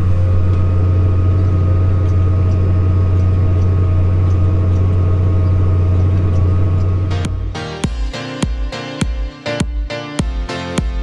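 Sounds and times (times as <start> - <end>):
faint steady whine: 0.0 - 7.6
tractor engine droning: 0.0 - 11.0.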